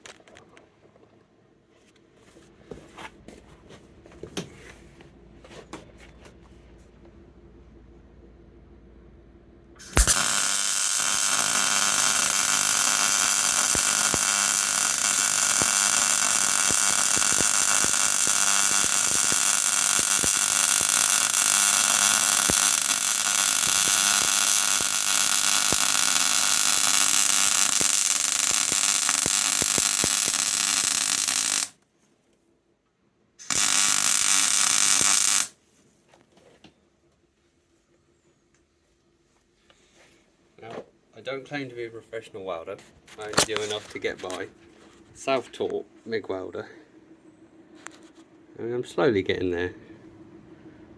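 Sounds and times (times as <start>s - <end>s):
welding arc crackling: 9.8s - 31.8s, 33.4s - 35.6s.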